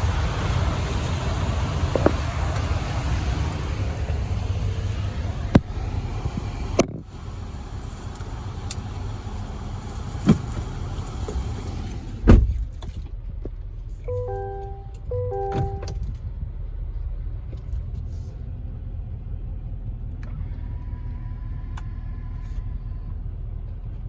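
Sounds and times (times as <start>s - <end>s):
vehicle engine and road noise: 0.0s - 24.0s
heavy thump: 12.2s - 12.7s.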